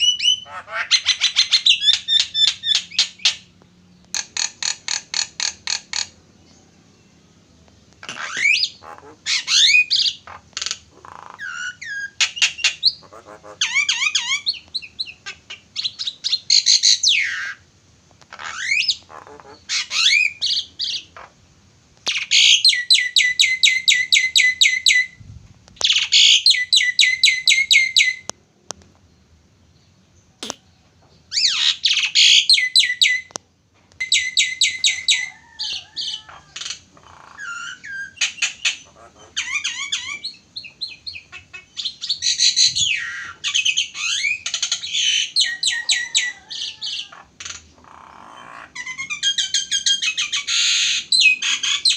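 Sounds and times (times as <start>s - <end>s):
starling singing: 0.0s - 3.5s, 8.0s - 17.7s, 22.1s - 25.2s, 25.8s - 28.3s, 31.3s - 33.4s, 34.0s - 51.9s.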